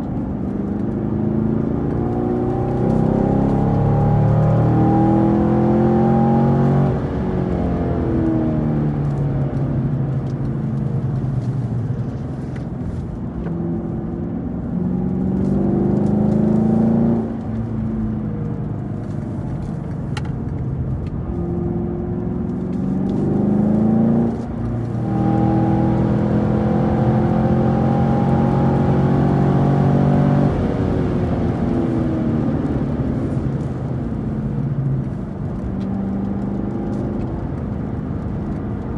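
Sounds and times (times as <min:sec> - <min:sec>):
car engine revving hard: 0:14.9 - 0:17.4, 0:22.4 - 0:32.8.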